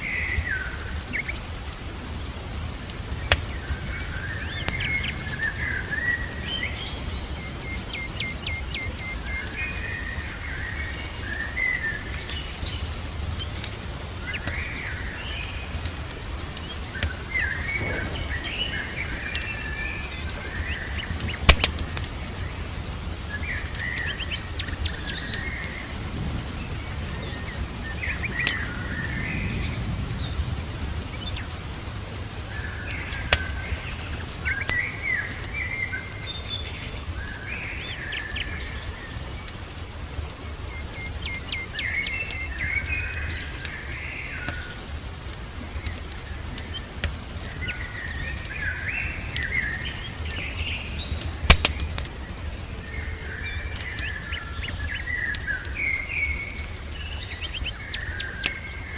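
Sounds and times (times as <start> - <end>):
songbirds chirping: 0.0 - 58.9
wood fire crackling and popping: 0.0 - 58.9
low rumble and hiss: 12.0 - 58.0.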